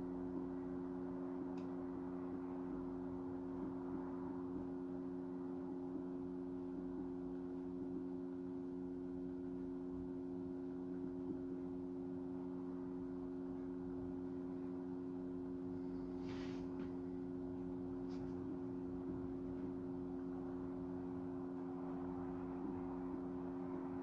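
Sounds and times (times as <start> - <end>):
steady low hum: 0.0 - 24.0
brief hiss: 16.1 - 16.8.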